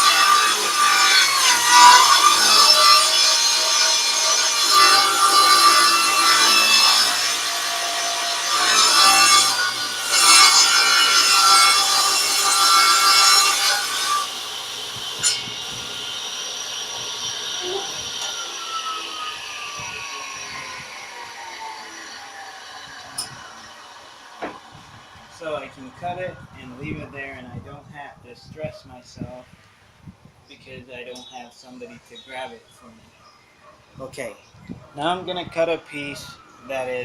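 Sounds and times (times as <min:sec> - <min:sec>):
table saw cutting plywood: 0:00.0 - 0:26.1.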